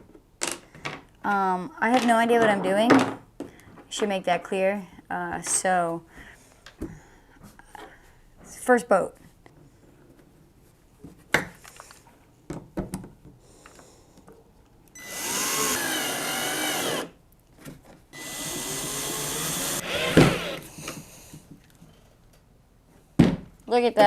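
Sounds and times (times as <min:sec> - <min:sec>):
power drill running: 0:15.0 - 0:17.1, 0:18.2 - 0:20.7.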